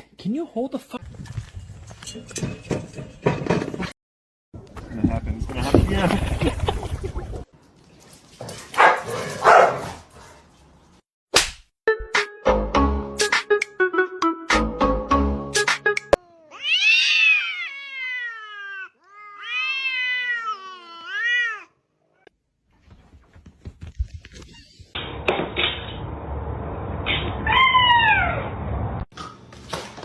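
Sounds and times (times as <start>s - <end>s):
cat meowing: 16.2s - 22.3s.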